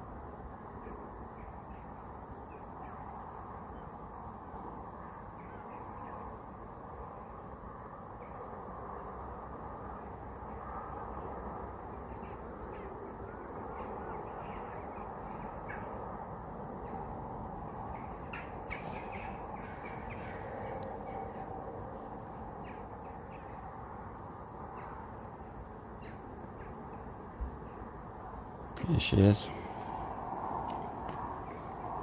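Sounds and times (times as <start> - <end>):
low outdoor rush: 0.0 - 32.0
birds cawing: 12.0 - 16.0, 17.8 - 23.8.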